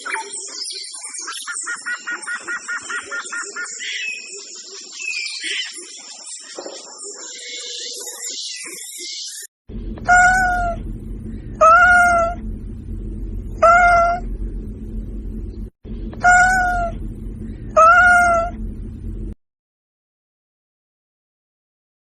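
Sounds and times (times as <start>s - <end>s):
low background hum: 9.7s - 19.4s
cat meowing: 10.0s - 10.8s, 11.6s - 12.4s, 13.6s - 14.2s, 16.2s - 17.0s, 17.8s - 18.6s.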